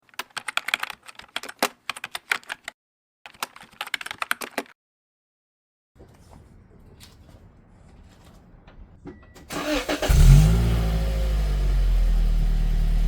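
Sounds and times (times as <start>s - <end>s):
rapid keyboard typing clicks: 0.1s - 4.8s.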